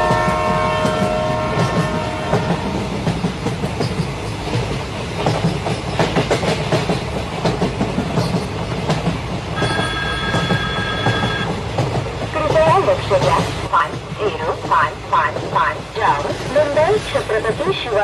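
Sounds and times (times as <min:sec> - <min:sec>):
train wheels clattering on rails: 0:00.0 - 0:18.0
steady high tone: 0:09.6 - 0:11.5.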